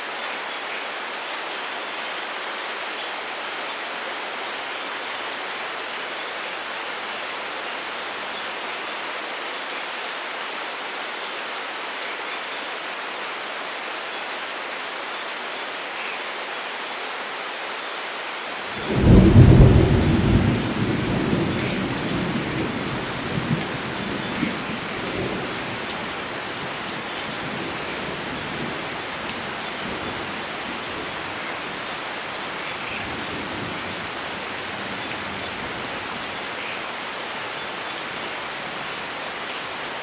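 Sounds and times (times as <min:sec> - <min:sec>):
heavy rain falling: 0:18.3 - 0:40.0
thunder rumble: 0:18.7 - 0:31.6.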